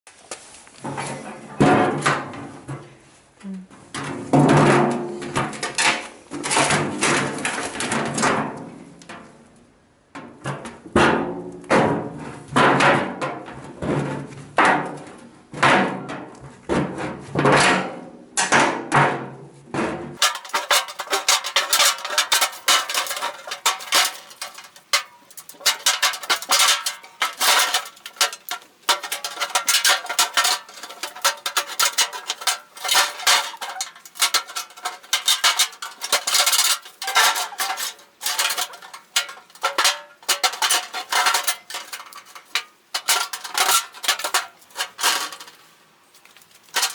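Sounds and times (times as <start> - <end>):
metallic clanking on sheet metal: 20.2 - 45.6.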